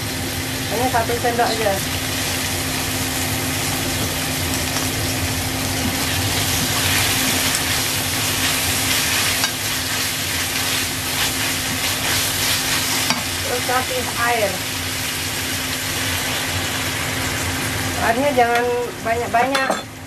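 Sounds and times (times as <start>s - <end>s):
meat sizzling in a pan: 0.0s - 20.0s
spatula scraping a pan: 6.0s - 13.3s.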